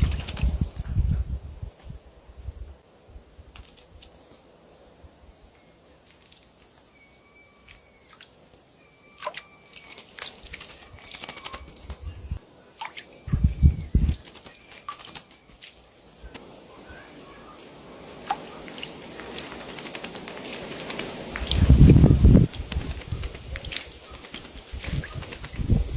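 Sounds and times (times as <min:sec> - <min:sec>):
wings fluttering: 0:00.0 - 0:02.0, 0:03.5 - 0:04.4, 0:09.2 - 0:25.9.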